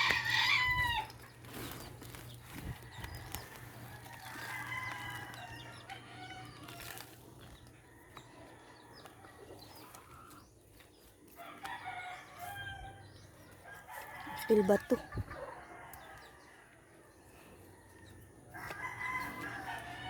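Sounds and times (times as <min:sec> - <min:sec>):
rooster crowing: 0:00.0 - 0:01.1, 0:02.9 - 0:06.9, 0:17.8 - 0:20.0.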